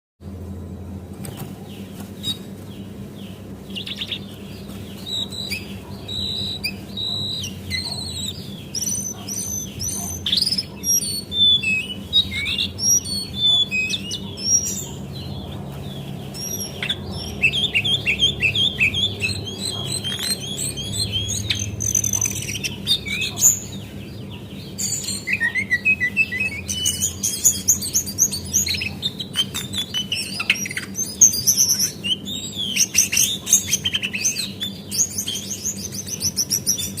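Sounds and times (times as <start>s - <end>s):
steady low hum: 0.2s - 37.0s
bird chirps and trills: 0.3s - 37.0s.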